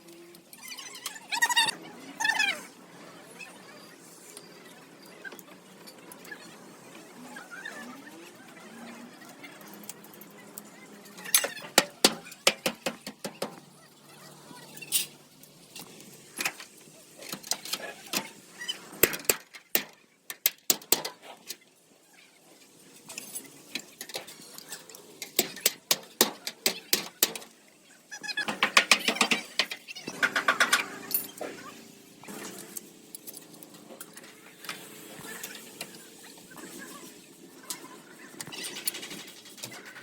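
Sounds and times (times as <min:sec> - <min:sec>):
tools tapping on metal: 0:11.3 - 0:13.6, 0:25.2 - 0:27.5, 0:28.4 - 0:31.4.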